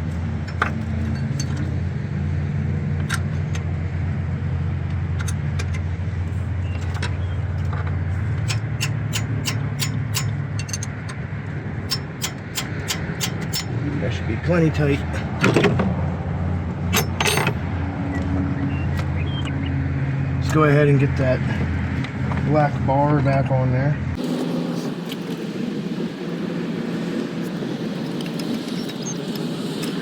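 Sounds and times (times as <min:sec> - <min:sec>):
wrench clicking on bolts: 0:08.4 - 0:11.2, 0:11.9 - 0:13.7, 0:16.9 - 0:17.6.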